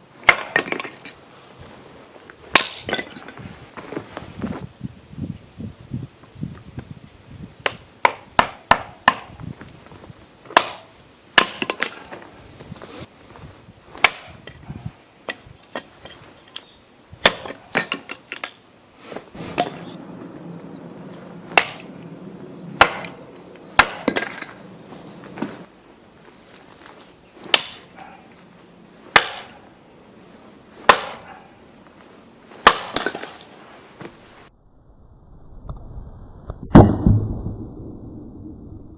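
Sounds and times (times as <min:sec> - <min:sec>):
axe splitting firewood: 0:00.2 - 0:01.2, 0:02.5 - 0:03.4, 0:07.6 - 0:09.3, 0:10.5 - 0:12.2, 0:14.0 - 0:14.7, 0:17.2 - 0:20.0, 0:21.5 - 0:21.9, 0:22.8 - 0:23.2, 0:23.8 - 0:24.6, 0:27.4 - 0:28.0, 0:29.1 - 0:29.6, 0:30.8 - 0:31.3, 0:32.6 - 0:33.5.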